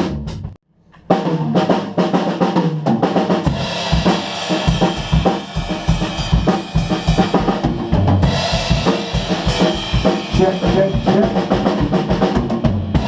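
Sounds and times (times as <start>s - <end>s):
snare drum: 1.1s - 13.0s
cymbals: 3.4s - 13.0s.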